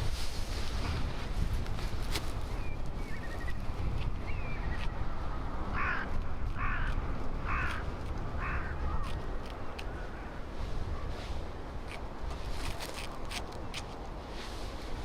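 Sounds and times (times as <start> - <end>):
crow cawing: 5.7 - 7.8, 8.4 - 9.1.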